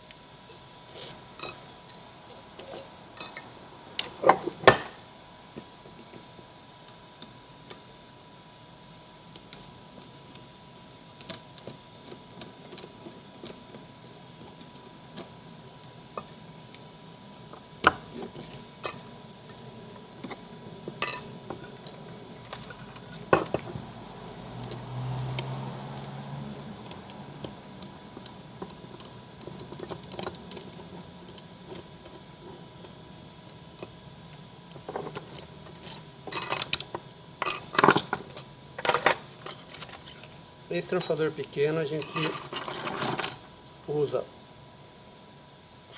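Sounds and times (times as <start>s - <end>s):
small metallic clicks and clinks: 0.5s - 5.0s, 18.2s - 19.7s, 21.0s - 22.8s, 35.1s - 41.2s, 42.0s - 43.4s.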